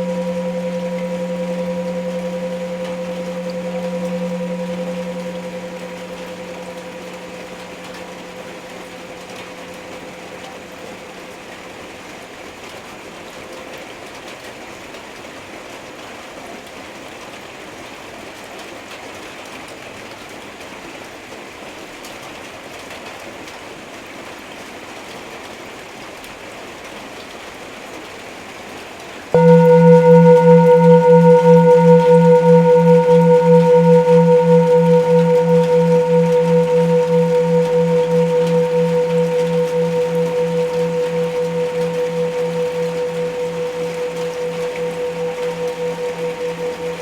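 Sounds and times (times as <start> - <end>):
singing bowl ringing: 0.0 - 11.0, 29.4 - 47.0.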